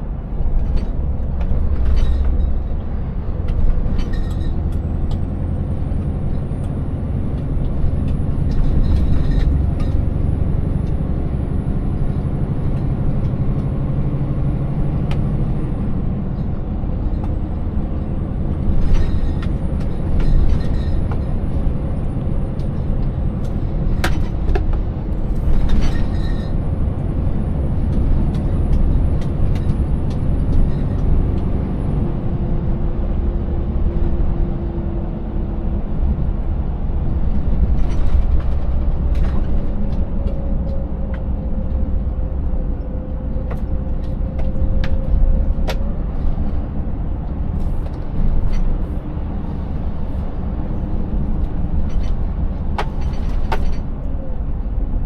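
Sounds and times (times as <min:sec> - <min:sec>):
truck engine and road rumble: 0:00.0 - 0:55.0.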